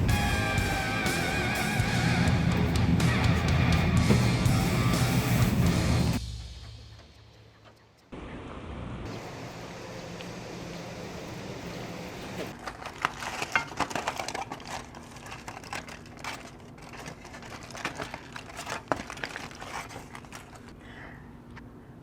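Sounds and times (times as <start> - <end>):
packaging crinkling: 12.5 - 20.8.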